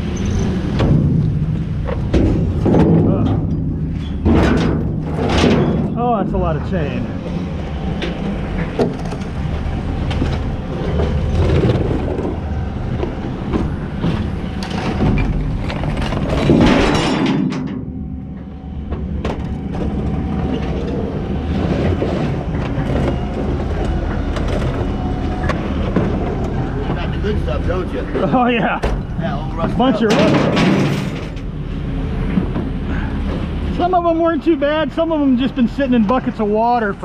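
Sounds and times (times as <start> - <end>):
steady low rumble: 0.0 - 37.0
scrap metal clattering into bin: 30.1 - 31.4.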